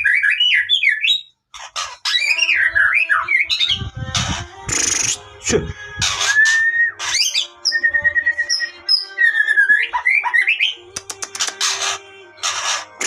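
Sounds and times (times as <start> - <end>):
shama singing whistles: 2.1 - 5.3, 6.0 - 10.8
sharp clicks: 10.9 - 11.8.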